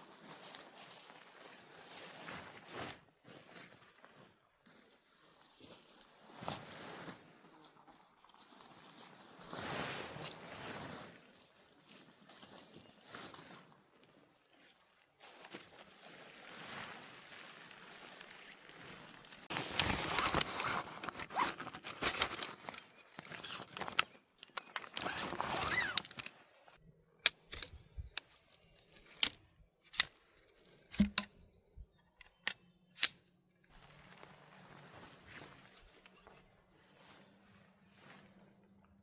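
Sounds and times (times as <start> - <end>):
rustling and scraping gear: 17.9 - 31.4, 32.2 - 38.8
sharp clicks and knocks: 30.9 - 31.4.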